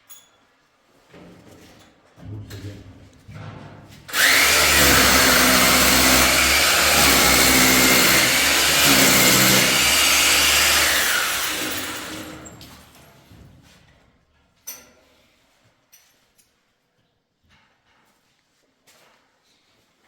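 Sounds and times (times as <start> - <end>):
electric power tool motor: 4.1 - 12.6.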